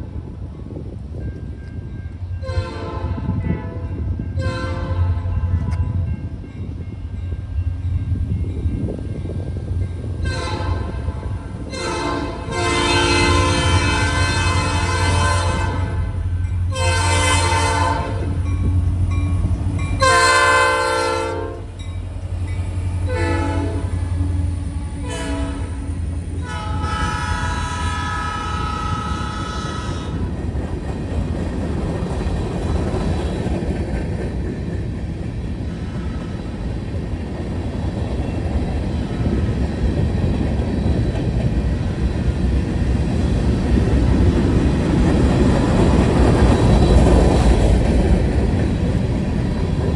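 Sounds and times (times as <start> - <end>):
locomotive air horn: 2.4 - 5.7, 10.2 - 18.3, 20.0 - 21.7, 23.1 - 24.1, 25.0 - 30.2
locomotive engine hum: 3.8 - 49.9
train wheels clicking on rails: 28.6 - 49.9.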